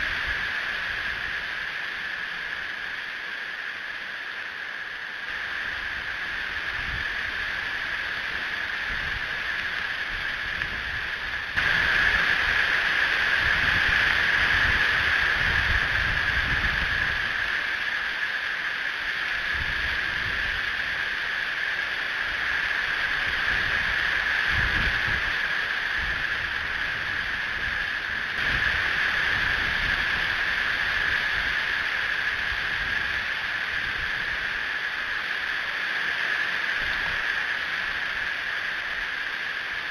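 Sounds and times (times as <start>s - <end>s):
wind buffeting microphone: 8.2s - 17.4s, 23.2s - 34.6s.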